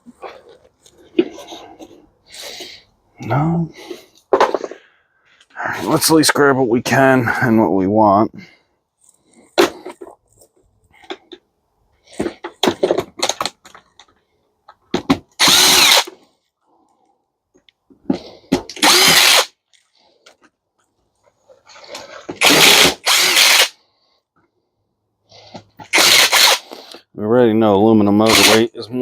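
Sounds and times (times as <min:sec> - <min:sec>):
power drill-driver bursts: 0:15.4 - 0:16.2, 0:18.7 - 0:19.6, 0:22.4 - 0:23.8, 0:25.8 - 0:27.0, 0:28.2 - 0:28.7.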